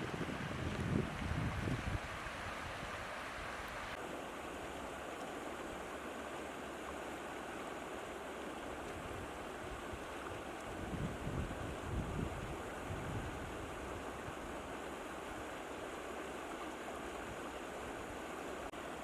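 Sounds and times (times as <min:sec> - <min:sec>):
wind gusting on microphone: 0:00.0 - 0:03.5, 0:10.7 - 0:14.3
water rushing: 0:00.0 - 0:19.0.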